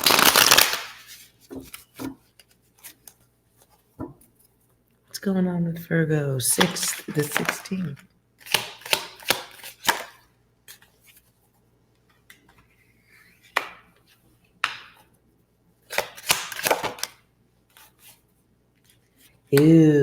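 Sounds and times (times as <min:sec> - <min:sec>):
cards shuffling: 0:06.5 - 0:11.3, 0:15.9 - 0:18.2.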